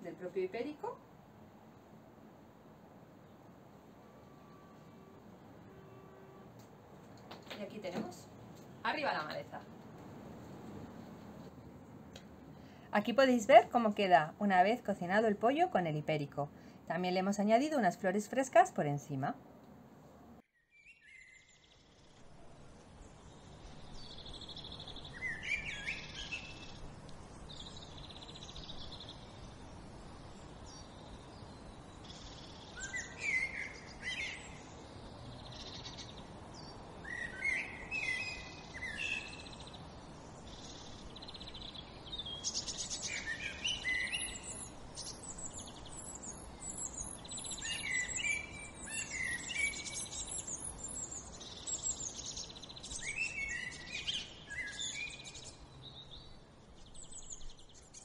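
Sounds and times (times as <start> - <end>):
background hiss: 0.0 - 20.4, 21.0 - 58.0
birds singing: 20.6 - 22.2, 23.0 - 58.0.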